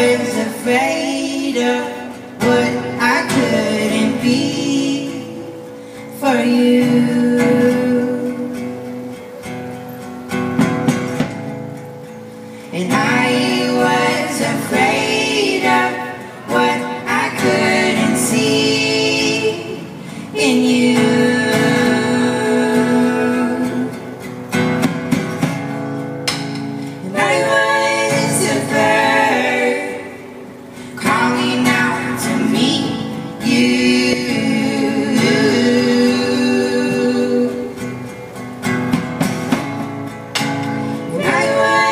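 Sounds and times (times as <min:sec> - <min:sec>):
person singing: 0:00.0 - 0:08.8, 0:12.7 - 0:24.2, 0:27.0 - 0:38.1, 0:40.9 - 0:41.9
guitar: 0:00.0 - 0:41.9.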